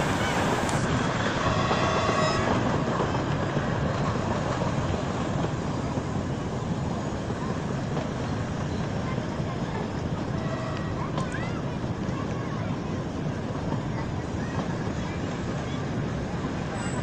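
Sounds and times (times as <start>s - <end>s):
train wheels and rushing air: 0.0s - 17.0s.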